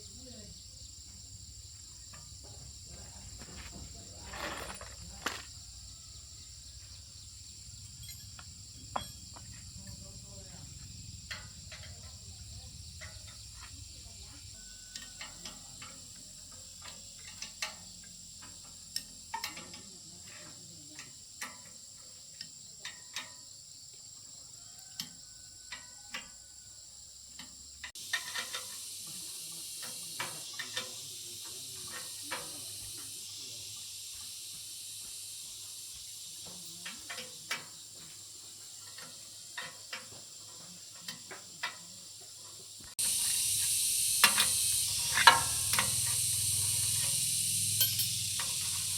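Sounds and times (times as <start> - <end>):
steady hiss: 0.0 - 26.6, 27.2 - 48.9
hand tools clicking and tapping: 11.2 - 23.6, 27.3 - 33.2, 36.4 - 48.9.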